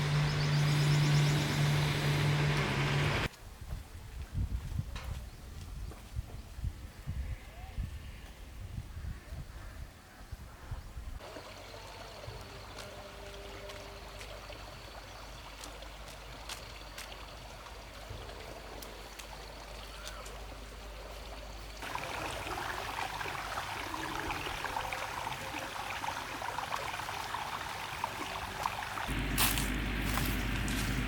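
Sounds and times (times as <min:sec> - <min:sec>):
flowing water: 0:11.2 - 0:31.0.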